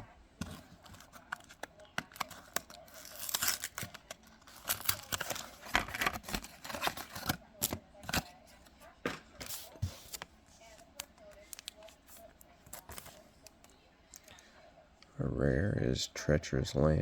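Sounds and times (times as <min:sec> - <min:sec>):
cards clicking and rustling: 0:00.4 - 0:14.4
foil wrapper tearing and crinkling: 0:00.8 - 0:08.2.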